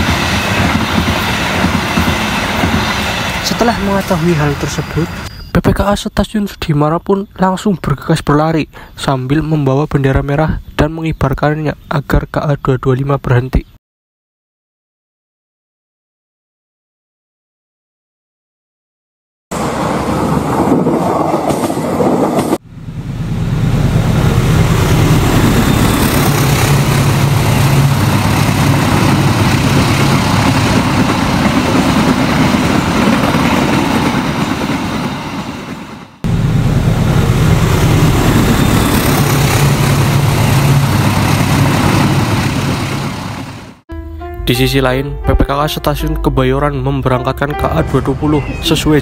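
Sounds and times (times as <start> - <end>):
train running on rails: 0.0 - 5.6, 19.5 - 43.8.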